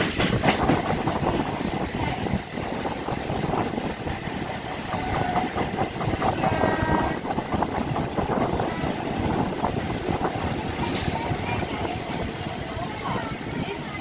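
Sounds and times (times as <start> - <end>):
train rumble: 0.0 - 14.0
wheels clattering over rail joints: 4.6 - 14.0.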